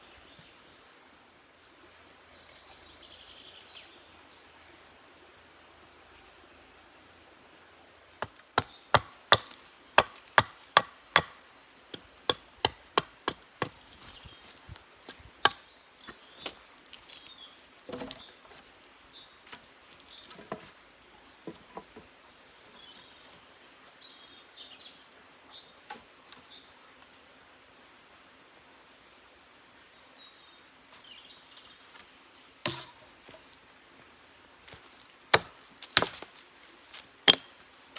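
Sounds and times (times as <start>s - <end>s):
birds chirping faintly: 0.0s - 27.7s
axe chopping wood: 8.2s - 11.4s, 12.0s - 14.2s, 15.1s - 16.6s, 17.9s - 18.2s, 32.7s - 33.0s, 35.3s - 36.3s, 37.2s - 37.5s.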